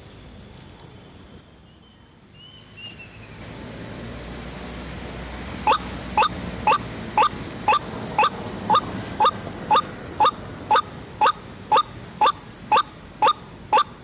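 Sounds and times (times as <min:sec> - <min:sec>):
waterhen calling: 0:05.6 - 0:14.0.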